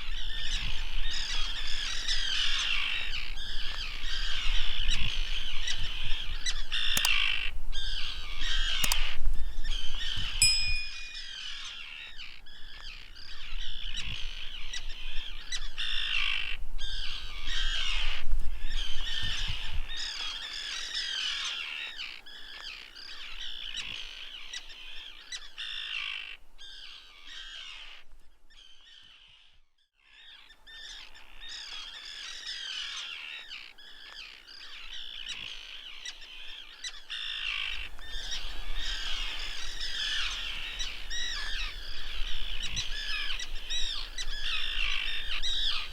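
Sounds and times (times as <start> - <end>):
birds chirping and squawking: 30.2 - 45.9.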